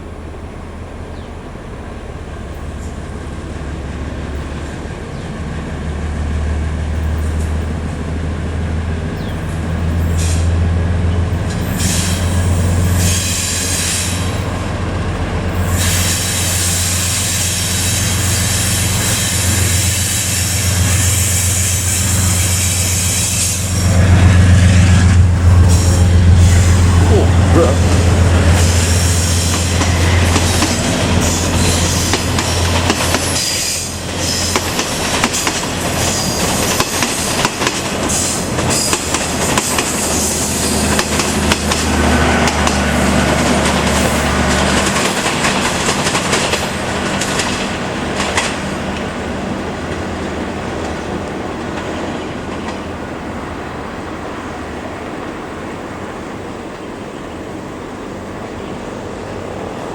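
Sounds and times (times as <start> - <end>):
deep locomotive engine drone: 0.0 - 59.9
train wheels clacking over rail joints: 11.3 - 49.2.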